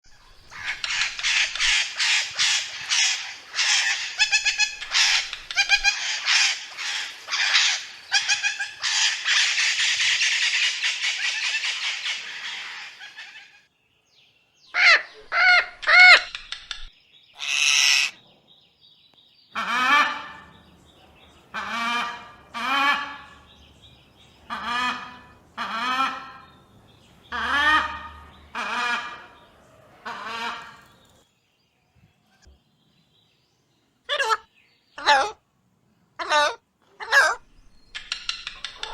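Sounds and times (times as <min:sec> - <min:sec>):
parrot rising and falling calls: 0:00.5 - 0:13.4, 0:14.8 - 0:18.2, 0:36.2 - 0:38.9
parrot screechy squawks: 0:00.5 - 0:13.5, 0:14.8 - 0:18.2, 0:36.2 - 0:38.9.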